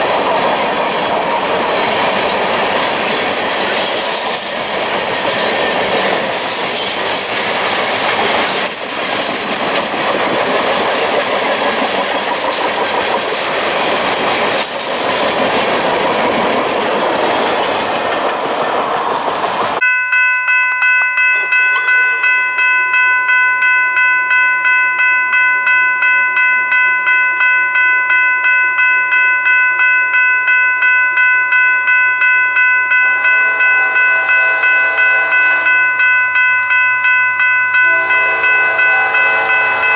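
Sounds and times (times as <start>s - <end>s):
train wheels rumbling on rail: 0.0s - 19.8s, 32.9s - 39.9s
grade-crossing bell ringing: 0.0s - 39.9s
high-pitched wheel squeal: 3.8s - 10.9s
faint train horn: 33.1s - 36.4s, 37.7s - 39.9s.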